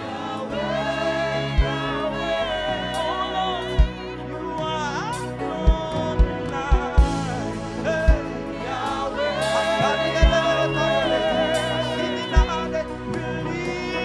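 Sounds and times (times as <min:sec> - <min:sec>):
gospel band playing: 0:00.0 - 0:14.0
lead vocalist singing: 0:00.0 - 0:14.0
kick drum hits: 0:05.7 - 0:07.3.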